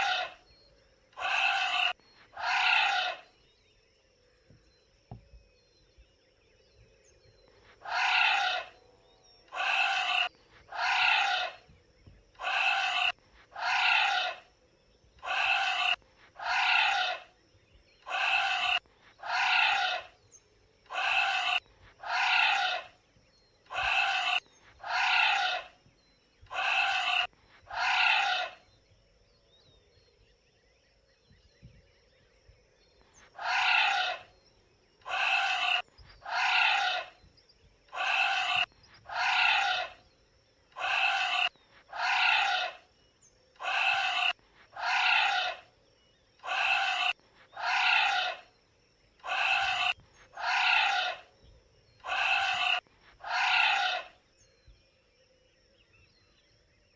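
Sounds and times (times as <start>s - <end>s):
anteater high pitched cries: 0.0s - 0.3s, 1.2s - 3.2s, 7.9s - 8.7s, 9.6s - 11.6s, 12.4s - 14.4s, 15.2s - 17.2s, 18.1s - 20.0s, 20.9s - 22.8s, 23.7s - 25.7s, 26.5s - 28.5s, 33.4s - 34.2s, 35.1s - 37.1s, 38.0s - 40.0s, 40.8s - 42.8s, 43.6s - 45.6s, 46.4s - 48.4s, 49.2s - 51.2s, 52.0s - 54.1s.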